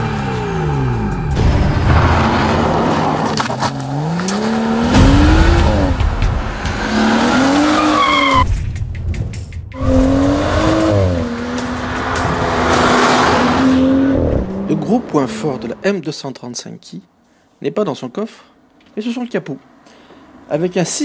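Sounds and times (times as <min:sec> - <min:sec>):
car engine revving: 0:00.0 - 0:08.5, 0:09.8 - 0:15.8.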